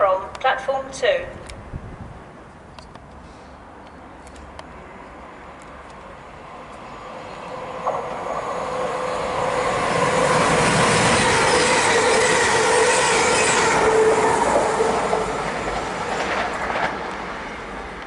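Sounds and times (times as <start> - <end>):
electric train approaching: 4.6 - 18.0
high tones from train: 6.7 - 17.7.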